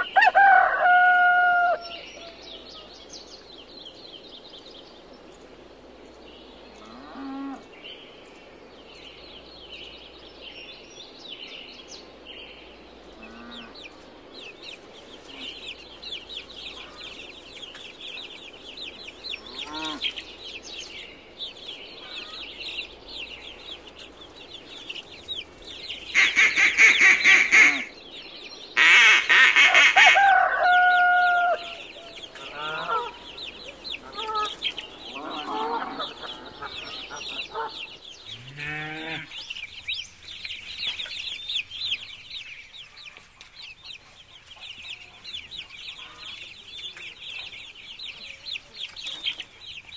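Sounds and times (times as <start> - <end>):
goslings peeping: 12.9 - 49.9
loud drawn-out bird calls: 13.1 - 13.9, 19.3 - 20.3, 21.9 - 22.9, 25.9 - 39.9.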